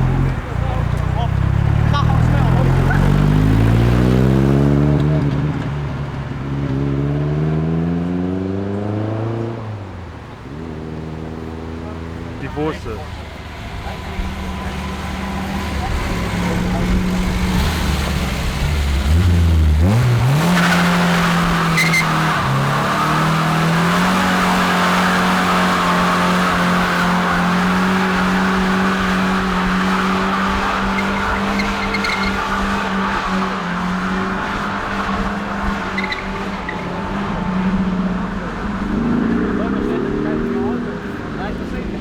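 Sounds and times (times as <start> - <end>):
car engine revving: 0.0 - 42.0
tyres spinning and squealing: 12.5 - 42.0.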